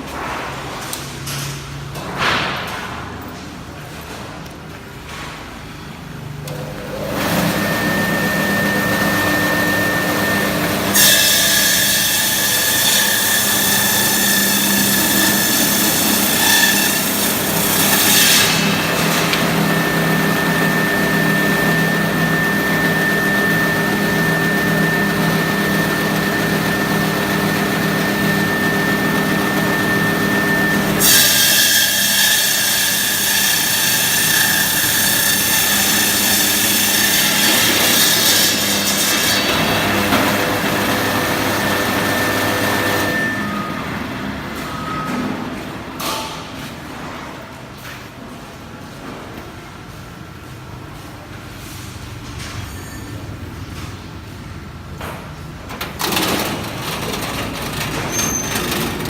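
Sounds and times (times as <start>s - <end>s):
ice cutter motor hum and whine: 6.4s - 45.8s, 55.8s - 59.0s.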